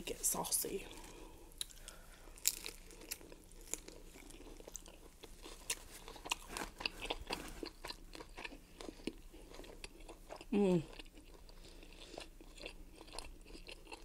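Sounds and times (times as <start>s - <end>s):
person chewing crunchy food: 0.9s - 14.0s.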